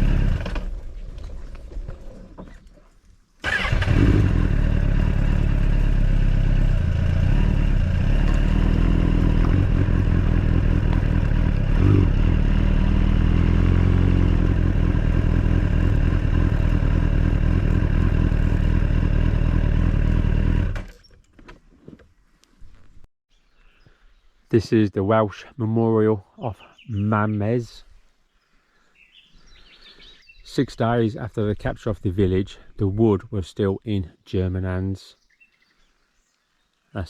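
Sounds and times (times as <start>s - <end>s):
motorcycle engine running: 0.0s - 0.8s, 3.5s - 20.9s.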